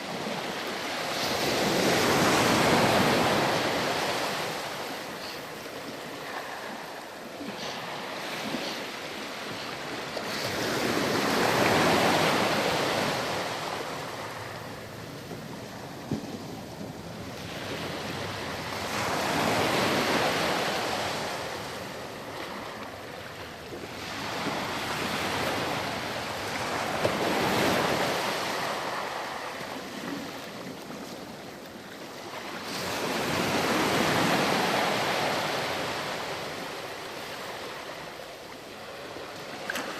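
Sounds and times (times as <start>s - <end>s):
wind on microphone: 0.0s - 22.8s
ocean waves breaking on beach: 0.0s - 39.9s.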